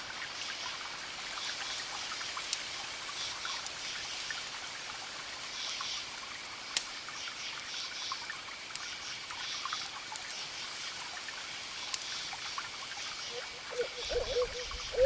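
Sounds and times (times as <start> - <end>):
campfire crackling and popping: 1.4 - 14.9
crickets chirping: 8.9 - 15.0.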